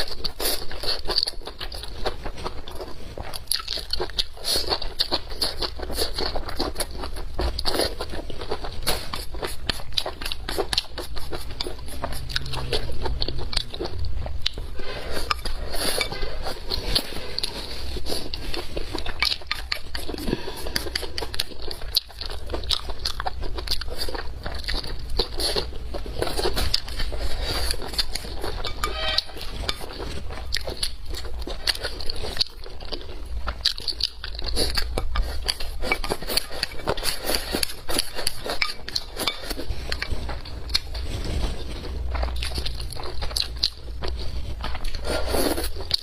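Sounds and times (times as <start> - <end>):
person chewing food: 0.0 - 46.0.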